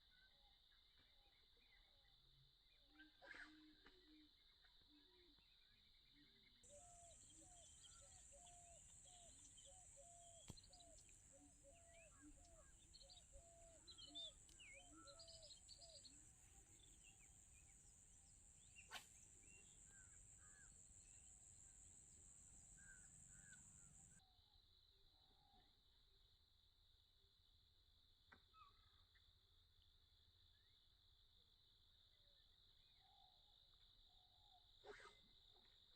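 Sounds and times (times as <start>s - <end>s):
bird chirps: 2.7s - 24.2s.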